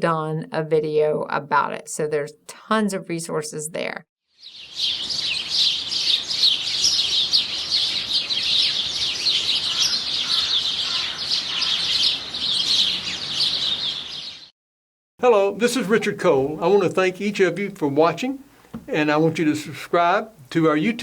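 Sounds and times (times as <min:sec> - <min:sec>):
songbirds chirping: 0:04.4 - 0:14.5.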